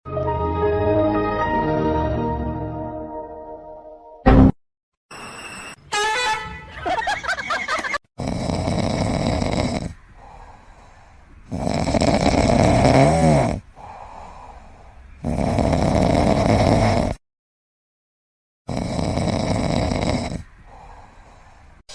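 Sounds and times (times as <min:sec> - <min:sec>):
pet snoring: 0:08.2 - 0:10.0, 0:11.5 - 0:14.0, 0:15.2 - 0:17.2, 0:18.7 - 0:20.8
quiet breaths: 0:08.4 - 0:12.6, 0:13.5 - 0:15.2, 0:19.0 - 0:21.9.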